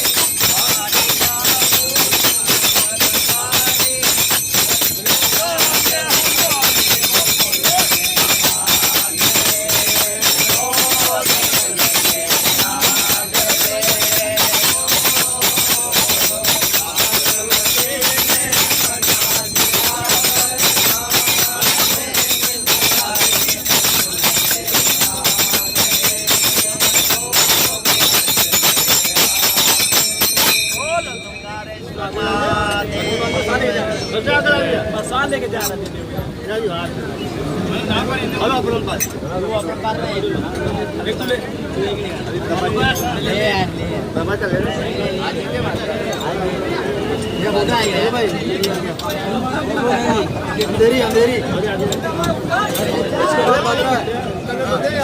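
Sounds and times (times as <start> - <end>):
group of voices singing: 0.0 - 35.2
jingling hand percussion and cymbals: 0.0 - 37.7, 38.5 - 55.0.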